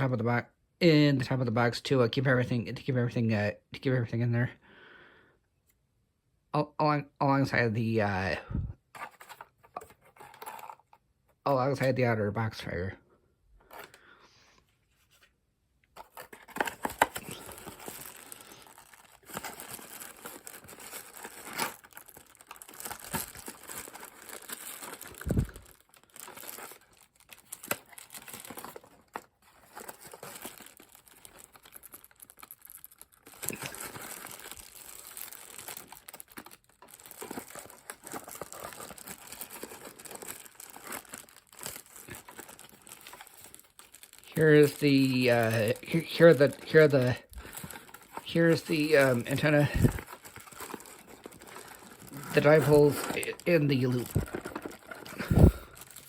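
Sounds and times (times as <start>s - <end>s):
packaging rustling and crinkling: 8.9s - 11.0s, 15.9s - 56.0s.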